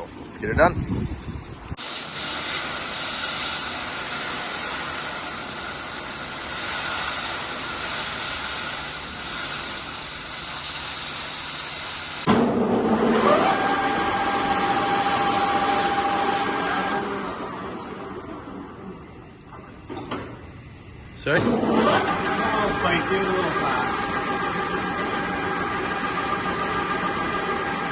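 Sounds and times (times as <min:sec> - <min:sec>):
cutting torch hissing: 0:01.7 - 0:12.3, 0:13.5 - 0:17.8, 0:21.2 - 0:27.9
machine rising whine: 0:12.2 - 0:19.7, 0:21.3 - 0:27.9.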